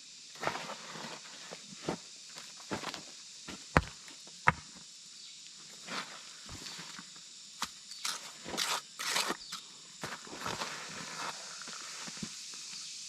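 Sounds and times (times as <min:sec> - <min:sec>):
steady high hiss: 0:00.0 - 0:13.0
rustling and scuffing: 0:00.4 - 0:04.2, 0:05.6 - 0:09.4, 0:10.0 - 0:12.8.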